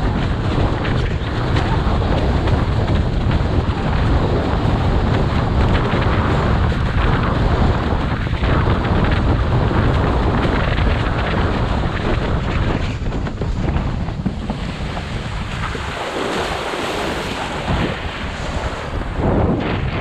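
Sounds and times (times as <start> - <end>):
water rushing under a board: 0.0 - 20.0
wind buffeting a microphone: 0.0 - 20.0.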